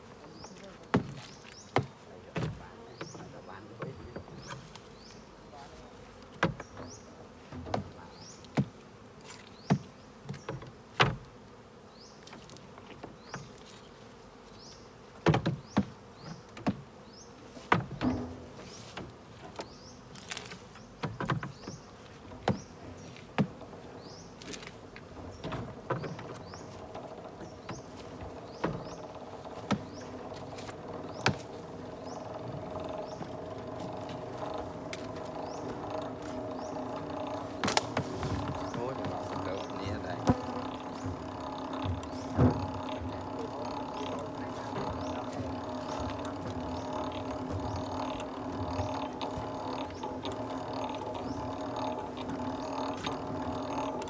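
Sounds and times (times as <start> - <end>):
honeybees buzzing: 0.0 - 54.0
sharp clicks and knocks: 17.7 - 54.0.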